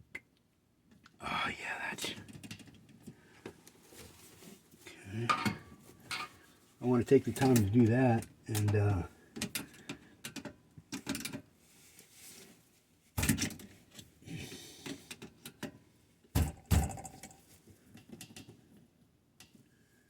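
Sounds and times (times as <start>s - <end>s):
clatter of tools and metal parts: 5.2s - 6.4s, 8.5s - 11.4s.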